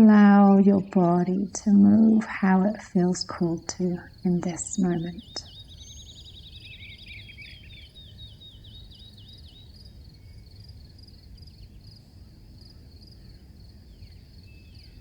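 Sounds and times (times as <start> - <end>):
low background rumble: 0.0 - 5.5
crickets chirping: 0.8 - 15.0.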